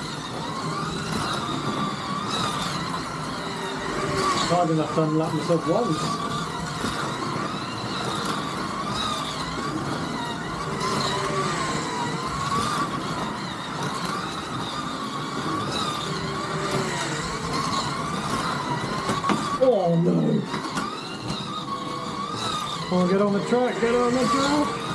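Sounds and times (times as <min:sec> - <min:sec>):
slot car motors whining: 0:00.0 - 0:24.9.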